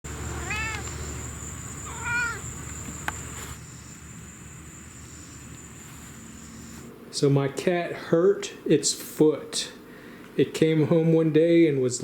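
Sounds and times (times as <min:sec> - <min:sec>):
cat meowing: 0:00.1 - 0:02.8.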